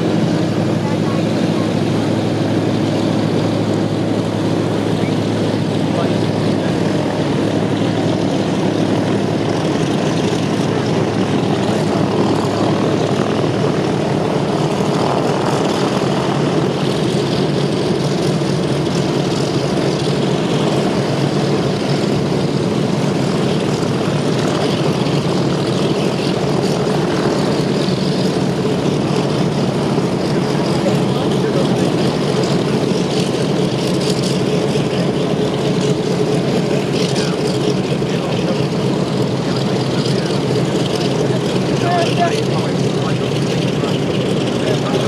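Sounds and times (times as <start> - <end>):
piston engines and propellers droning: 0.0 - 45.0.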